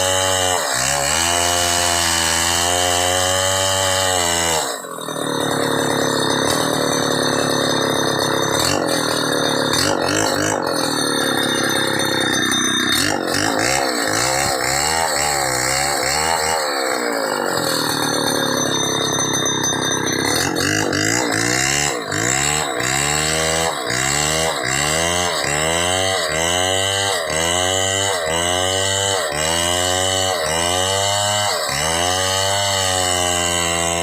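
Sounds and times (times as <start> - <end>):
chainsaw cutting wood: 0.0 - 34.0.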